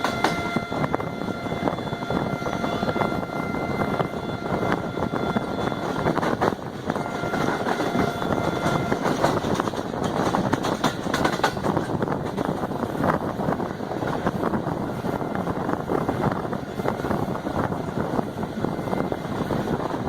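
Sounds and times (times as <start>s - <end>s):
faint high wheel squeal: 0.0s - 6.3s, 6.9s - 9.2s
train wheels rumbling on track: 0.0s - 20.0s
rapid clicking and clatter: 6.2s - 12.7s.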